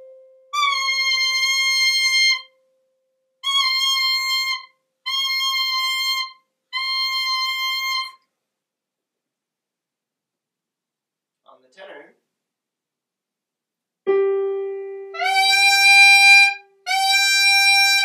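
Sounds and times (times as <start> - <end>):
faint low steady tone: 0.0 - 0.6
saxophone mouthpiece held notes: 15.1 - 18.0.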